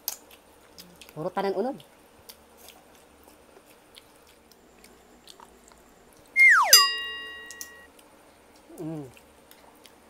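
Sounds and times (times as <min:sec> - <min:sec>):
faint wet chewing: 0:00.0 - 0:06.3, 0:07.9 - 0:10.0
downward-sliding whistle tone: 0:06.4 - 0:07.8
bright ringing chime: 0:06.4 - 0:07.9.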